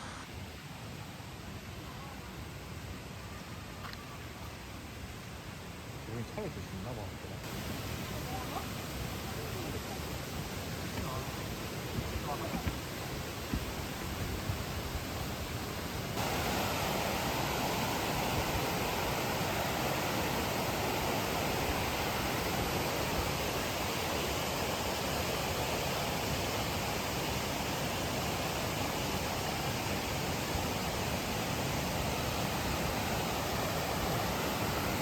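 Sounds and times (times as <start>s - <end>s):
mountain stream rushing: 7.4s - 35.0s.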